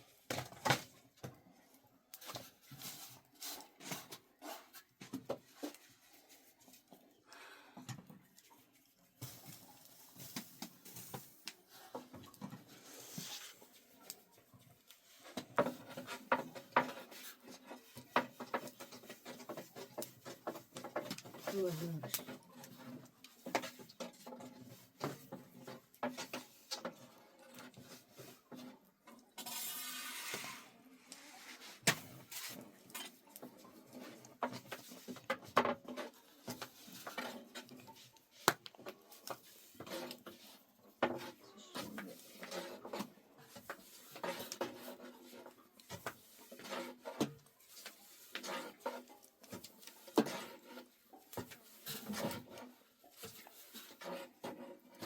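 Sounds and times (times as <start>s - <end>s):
household things knocking and clattering: 15.2s - 28.7s, 31.8s - 45.0s.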